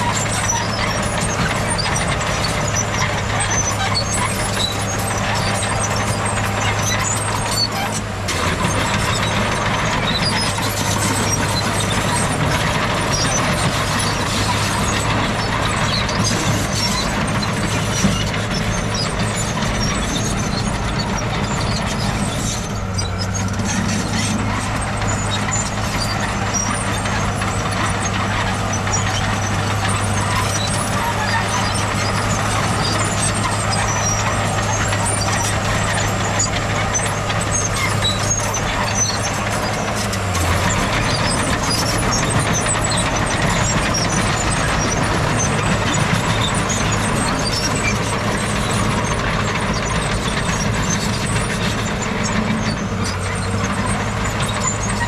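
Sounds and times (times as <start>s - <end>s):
heavy machinery engine drone: 0.0s - 55.0s
loud mechanical noise: 0.0s - 55.0s.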